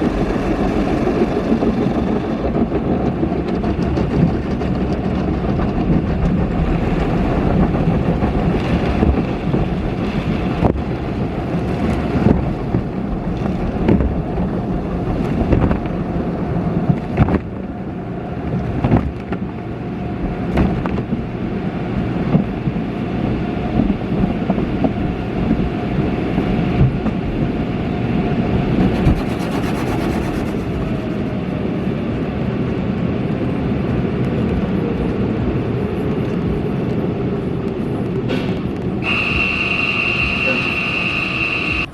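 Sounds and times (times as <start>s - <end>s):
spray and brushing on car: 28.8s - 31.2s
machinery hum: 38.8s - 41.9s.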